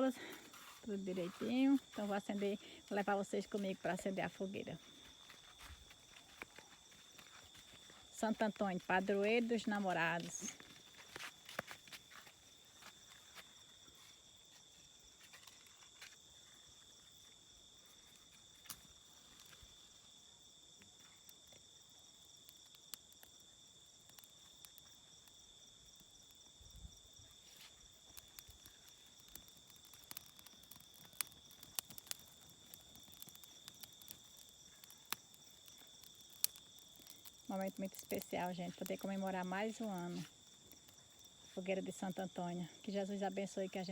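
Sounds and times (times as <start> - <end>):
crickets chirring: 0.0 - 43.9
sharp clicks and snaps: 28.1 - 39.1.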